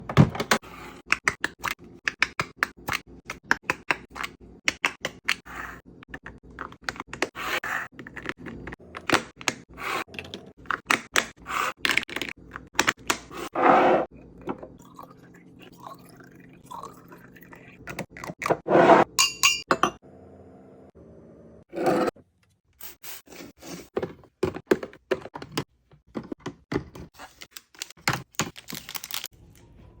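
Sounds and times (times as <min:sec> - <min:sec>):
plastic containers clicking and tapping: 0:24.0 - 0:27.1
packaging rustling and crinkling: 0:27.2 - 0:29.3.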